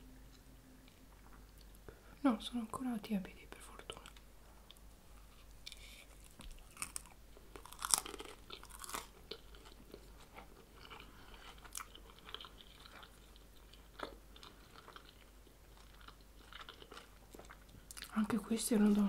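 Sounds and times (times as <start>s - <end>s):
quiet chewing: 0.2s - 2.0s, 3.8s - 19.0s
crisp crunches of biting: 5.7s - 18.1s.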